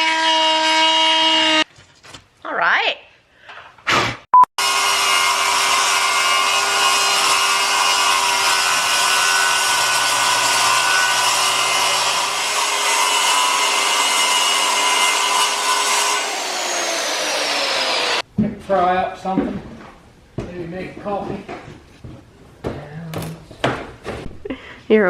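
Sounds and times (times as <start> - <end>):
electric saw cutting wood: 4.6 - 18.2.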